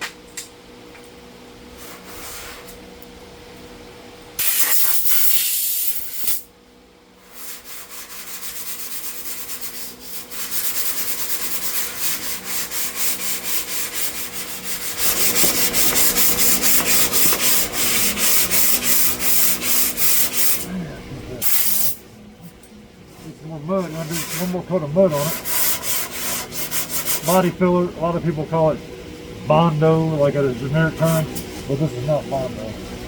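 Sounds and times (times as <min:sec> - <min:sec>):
sandpaper rubbing on filler: 0:01.7 - 0:02.8, 0:07.2 - 0:20.7, 0:23.6 - 0:27.5
loud hiss: 0:04.4 - 0:06.5, 0:21.4 - 0:22.0.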